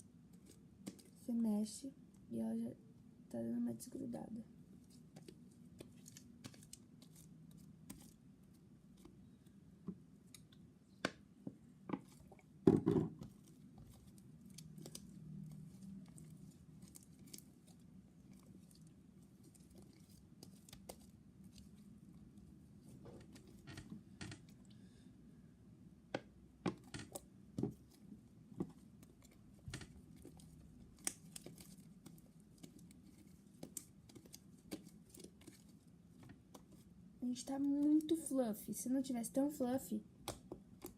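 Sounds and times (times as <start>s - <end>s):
sticky slime crackles and clicks: 29.0s - 35.7s.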